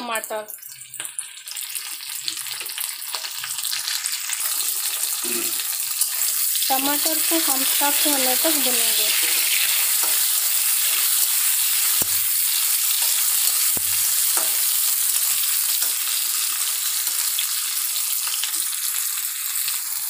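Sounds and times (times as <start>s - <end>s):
food sizzling in hot oil: 0.0s - 20.0s
spatula scraping and ticking: 7.6s - 16.3s.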